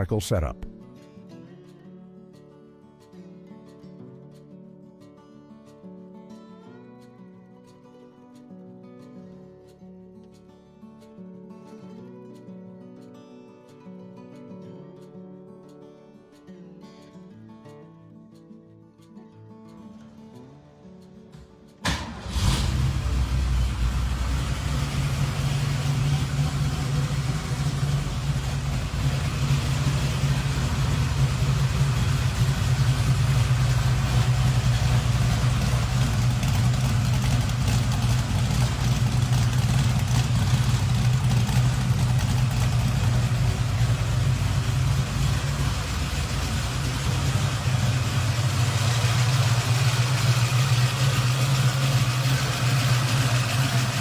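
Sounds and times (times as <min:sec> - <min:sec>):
car engine idling: 0:21.8 - 0:54.0.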